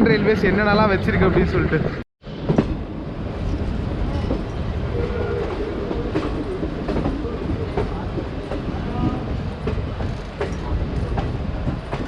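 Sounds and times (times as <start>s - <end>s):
train rumbling on rails: 0.0s - 12.0s
train wheel clicks: 6.1s - 12.0s.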